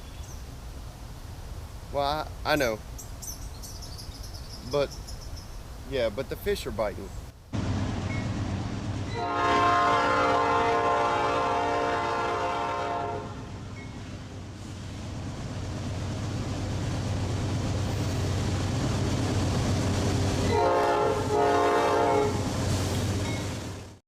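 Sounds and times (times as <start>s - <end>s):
train rumbling: 6.1s - 24.0s
diesel locomotive horn blasts: 9.1s - 13.9s, 20.4s - 22.9s.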